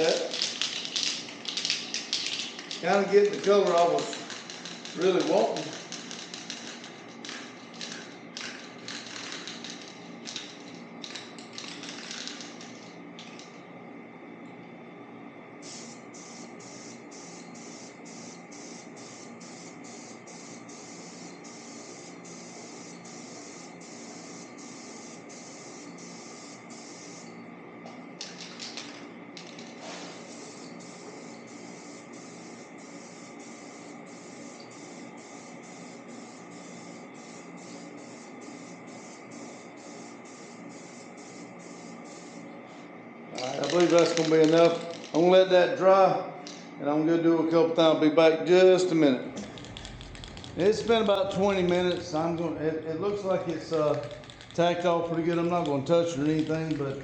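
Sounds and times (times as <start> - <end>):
steady hum: 0.0 - 57.0
paint spray hissing pulses: 15.6 - 27.4, 29.4 - 42.5, 49.4 - 52.5, 53.1 - 57.0.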